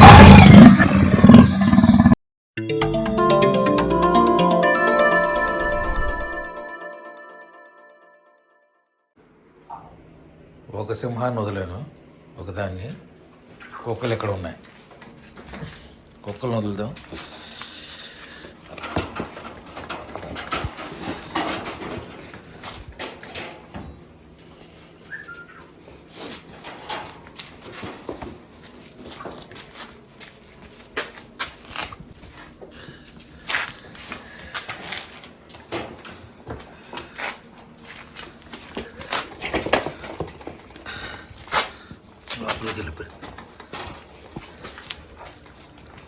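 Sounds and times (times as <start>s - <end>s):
animals scuffling knocks and thumps: 18.6s - 24.1s.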